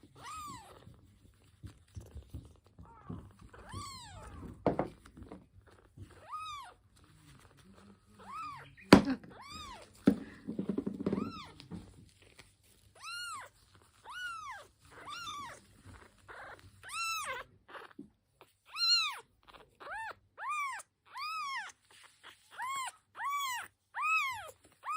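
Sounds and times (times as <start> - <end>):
kitten meowing: 0.0 - 1.0, 2.8 - 4.6, 5.7 - 6.8, 8.2 - 10.0, 13.0 - 18.0, 18.6 - 24.9.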